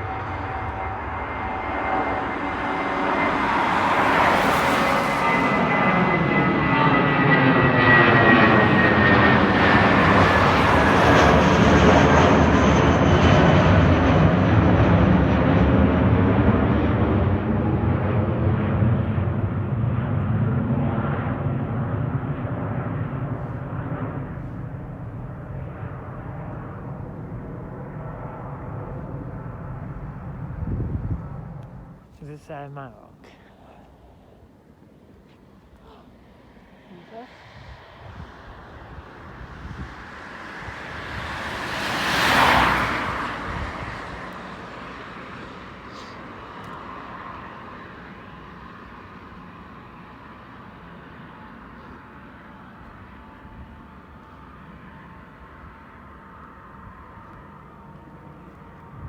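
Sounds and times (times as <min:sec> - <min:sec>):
jet airliner engines rumbling: 0:00.0 - 0:59.0
vehicle passing by: 0:02.2 - 0:06.3, 0:36.6 - 0:46.2.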